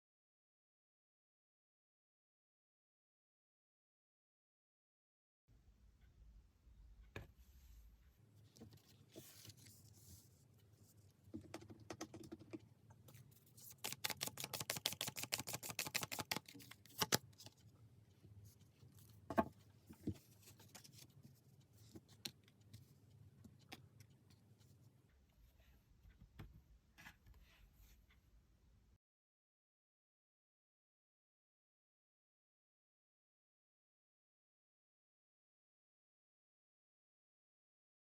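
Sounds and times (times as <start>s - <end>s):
cards shuffling and rustling: 13.1s - 17.6s
quick clicks of cards: 13.7s - 17.3s.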